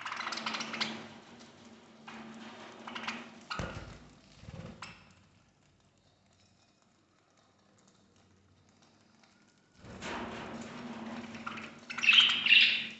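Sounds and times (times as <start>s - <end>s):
budgerigars chirping: 11.5s - 12.9s.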